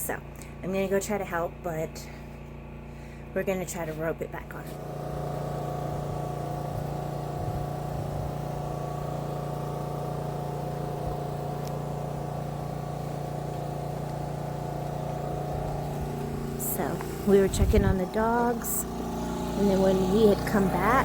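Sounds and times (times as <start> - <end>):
diesel truck engine idling: 4.9 - 21.0.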